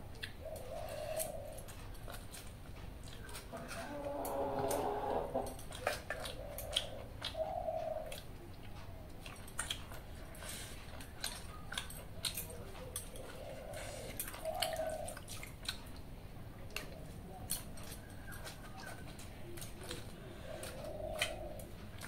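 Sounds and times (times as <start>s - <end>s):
person chewing: 0.0s - 22.0s
bird calling: 0.4s - 1.6s, 6.2s - 8.2s, 13.2s - 15.2s, 20.2s - 21.7s.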